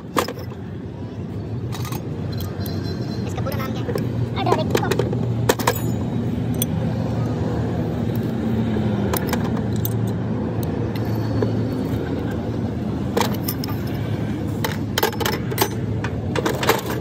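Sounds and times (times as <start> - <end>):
metal tools clinking: 0.0 - 0.7, 1.6 - 6.8, 9.1 - 10.2, 10.8 - 12.4, 13.1 - 17.0.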